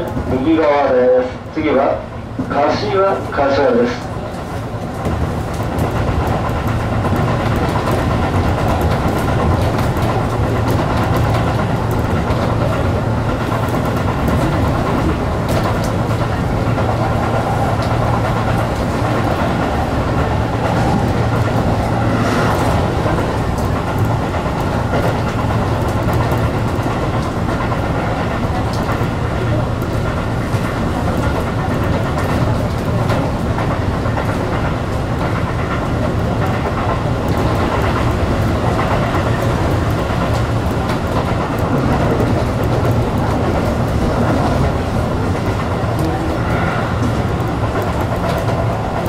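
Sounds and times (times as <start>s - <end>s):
train motor hum: 0.0s - 49.0s
train wheels rumbling on rail: 0.0s - 49.0s.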